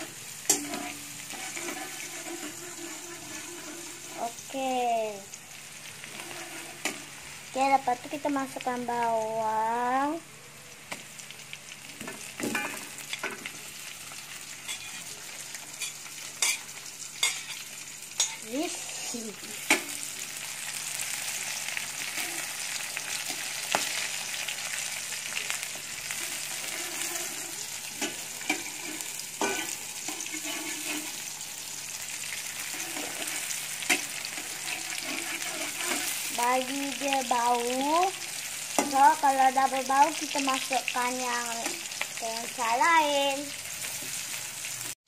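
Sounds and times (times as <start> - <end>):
metal spatula scraping pan: 0.0 - 4.5, 6.0 - 7.2, 14.7 - 15.1, 22.0 - 24.2, 26.0 - 31.4, 32.4 - 37.3
onions frying in hot oil: 0.0 - 45.0.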